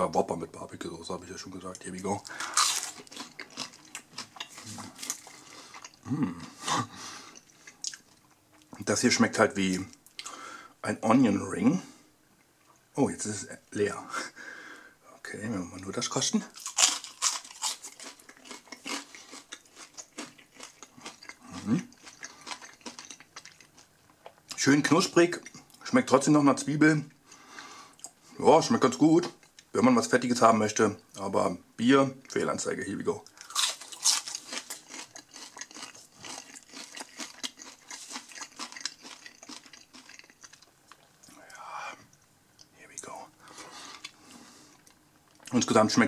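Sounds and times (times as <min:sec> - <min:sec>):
crunchy chewing: 0:02.2 - 0:08.8, 0:16.5 - 0:24.6, 0:33.3 - 0:43.1.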